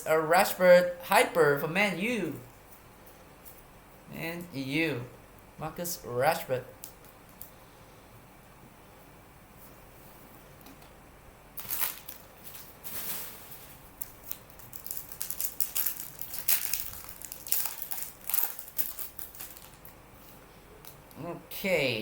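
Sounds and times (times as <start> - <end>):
wrapper crinkling and tearing: 11.6 - 20.0.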